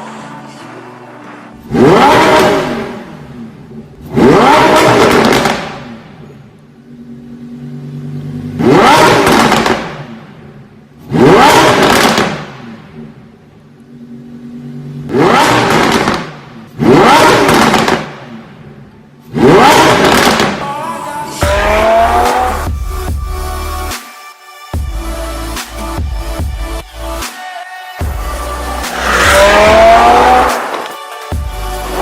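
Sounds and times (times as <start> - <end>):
car engine revving in blips: 0.1 - 20.6, 21.4 - 23.0, 28.1 - 31.0
car engine idling: 28.0 - 32.0.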